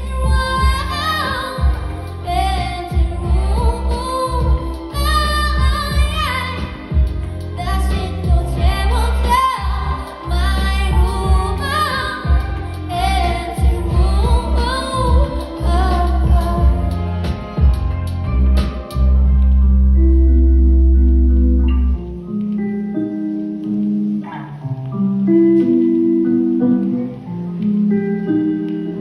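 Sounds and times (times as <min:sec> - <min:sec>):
person singing: 0:00.0 - 0:19.0
band playing bass and drums: 0:00.0 - 0:19.9.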